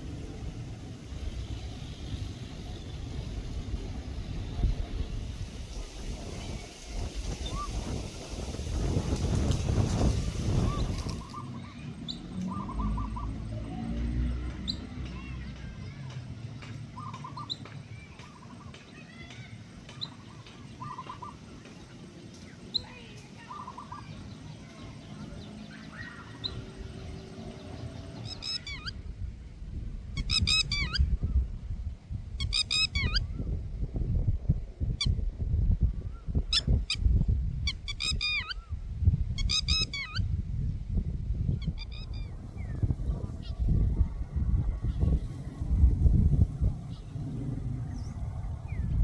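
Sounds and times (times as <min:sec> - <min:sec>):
steady low rumble: 0:00.0 - 0:18.8, 0:19.6 - 0:49.0
birds calling with squeaky notes: 0:10.5 - 0:29.0, 0:30.2 - 0:31.1, 0:32.4 - 0:33.4, 0:37.7 - 0:38.8, 0:39.4 - 0:40.3, 0:41.5 - 0:44.0.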